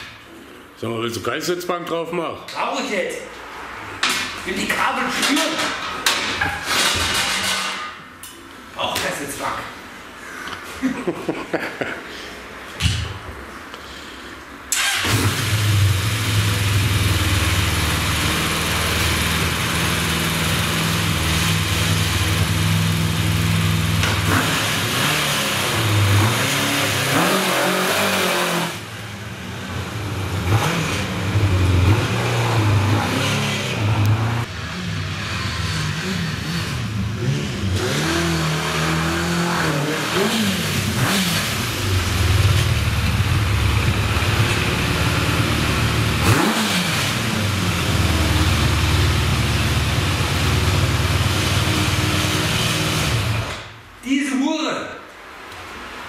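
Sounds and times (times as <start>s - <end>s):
motorcycle engine revving: 14.8s - 53.7s.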